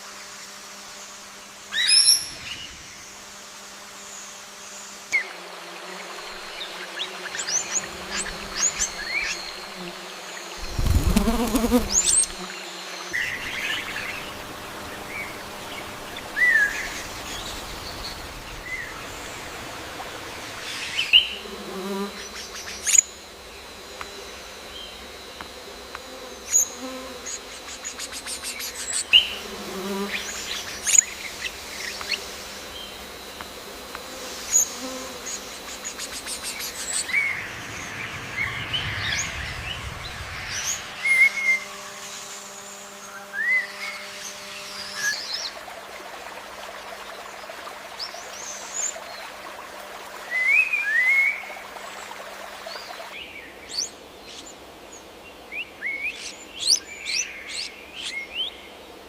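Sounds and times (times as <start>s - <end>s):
insect buzz: 0.0s - 59.0s
birds chirping: 6.2s - 12.4s, 13.1s - 25.2s, 34.1s - 42.4s.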